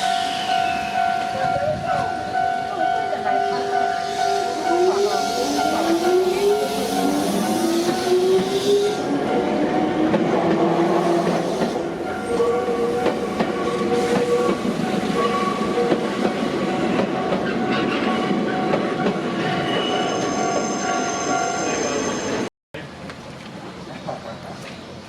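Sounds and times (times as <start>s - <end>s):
train wheels squealing: 0.0s - 2.1s, 4.0s - 9.1s, 19.5s - 22.5s.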